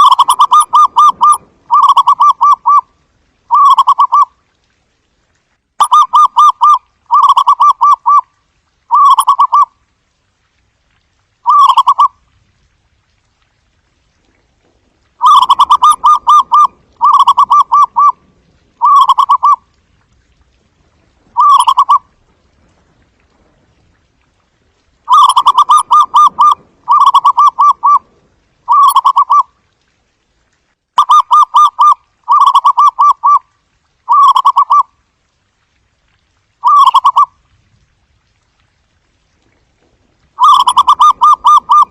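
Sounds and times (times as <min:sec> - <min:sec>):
dove cooing: 0:00.0 - 0:02.8, 0:15.2 - 0:18.2, 0:18.8 - 0:19.6, 0:21.4 - 0:22.0, 0:25.1 - 0:28.0, 0:28.7 - 0:29.5, 0:36.6 - 0:37.3, 0:40.4 - 0:41.9.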